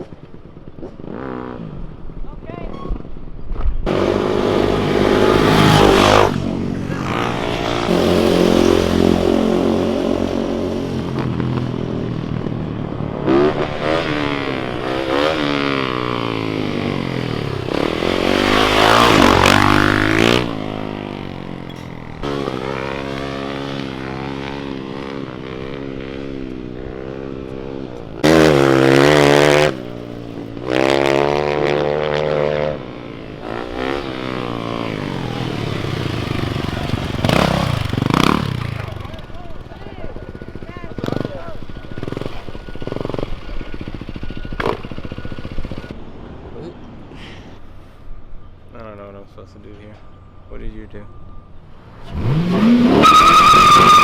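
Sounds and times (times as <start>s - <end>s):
car engine revving: 3.9s - 26.0s, 27.9s - 45.9s, 52.0s - 54.0s.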